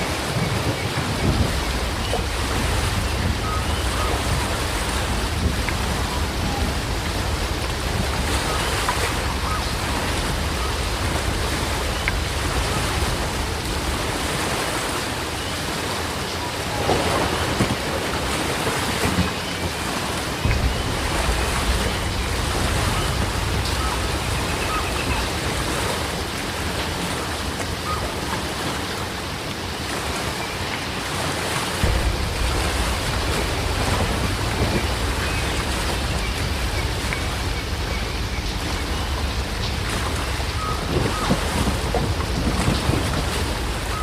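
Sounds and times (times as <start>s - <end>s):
heavy rain falling: 0.0s - 44.0s
deep low rumble: 20.4s - 25.3s, 31.8s - 43.8s.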